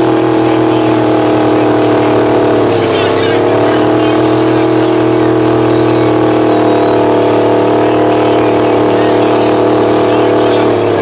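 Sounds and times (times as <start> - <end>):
truck engine running steadily: 0.0 - 11.0.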